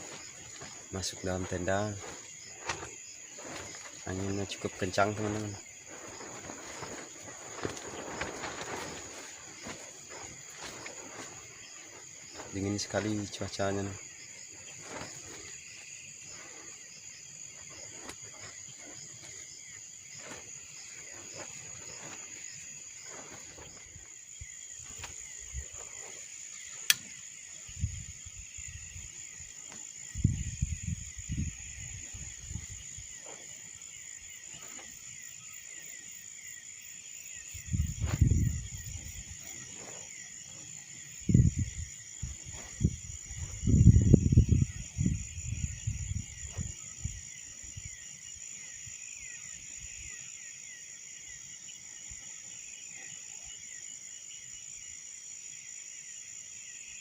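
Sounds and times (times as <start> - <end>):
wind gusts on microphone: 0.0 - 16.9, 27.4 - 34.9, 37.4 - 50.2
crickets chirping: 0.0 - 57.0.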